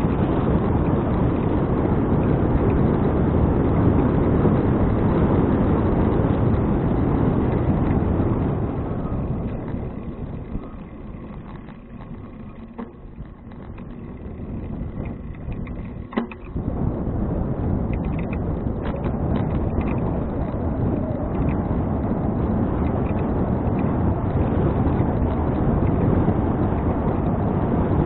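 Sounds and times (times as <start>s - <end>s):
wind rushing over microphone: 0.0s - 28.0s
small clicks: 9.1s - 16.7s, 17.9s - 22.1s.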